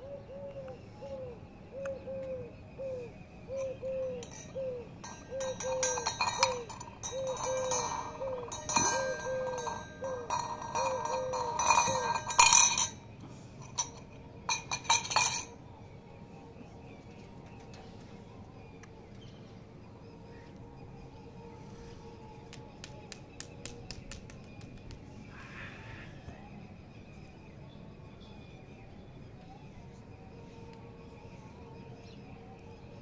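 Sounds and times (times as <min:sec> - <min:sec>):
bird repeating hollow note: 0:03.6 - 0:12.0
scuffling and clinking: 0:03.6 - 0:15.6.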